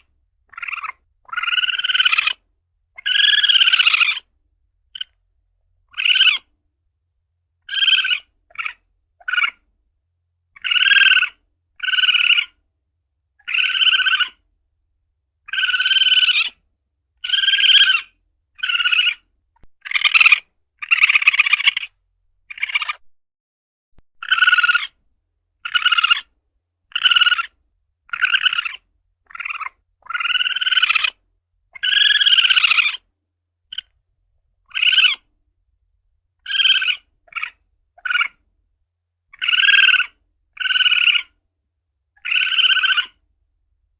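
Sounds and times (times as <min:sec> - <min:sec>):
civet calling: 0:00.0 - 0:04.3, 0:04.9 - 0:05.2, 0:05.9 - 0:06.5, 0:07.6 - 0:09.7, 0:10.5 - 0:12.6, 0:13.4 - 0:14.4, 0:15.4 - 0:16.6, 0:17.2 - 0:23.0, 0:24.2 - 0:25.0, 0:25.6 - 0:26.3, 0:26.9 - 0:33.1, 0:33.7 - 0:34.0, 0:34.6 - 0:35.3, 0:36.4 - 0:38.4, 0:39.3 - 0:41.4, 0:42.2 - 0:43.2.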